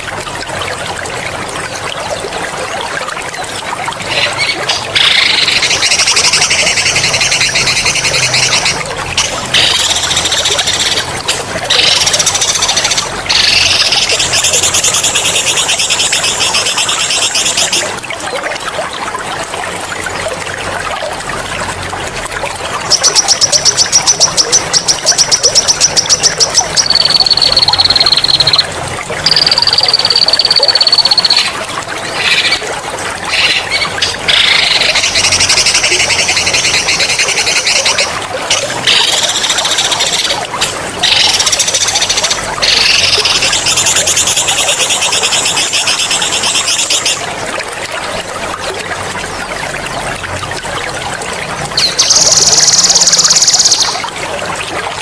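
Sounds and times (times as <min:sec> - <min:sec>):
trickling water: 0:00.0 - 0:55.0
songbirds trilling: 0:22.9 - 0:31.6.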